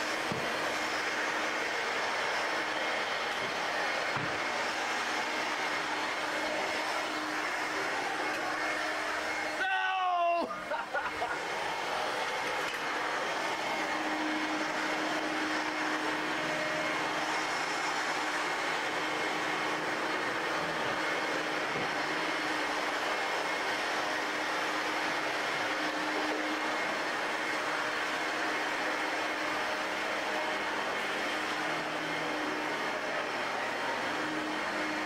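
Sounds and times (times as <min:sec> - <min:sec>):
vacuum cleaner motor whining: 0:00.0 - 0:35.0.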